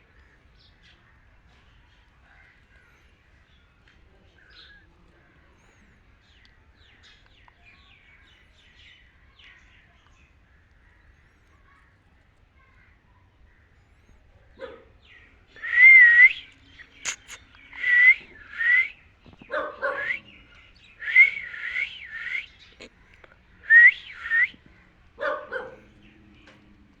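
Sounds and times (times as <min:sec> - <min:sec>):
parrot whistling: 0:15.6 - 0:16.4, 0:17.0 - 0:18.9, 0:21.0 - 0:22.5, 0:23.7 - 0:24.5
harsh parrot calls: 0:15.6 - 0:18.8.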